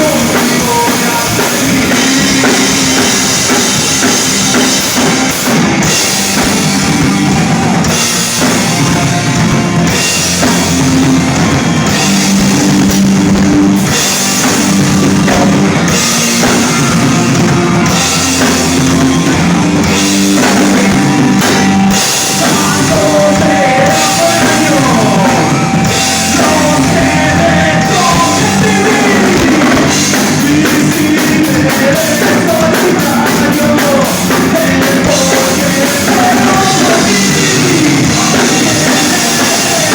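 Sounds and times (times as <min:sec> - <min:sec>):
live rock band playing: 0:00.0 - 0:39.9
wavering lead melody line: 0:01.8 - 0:31.2.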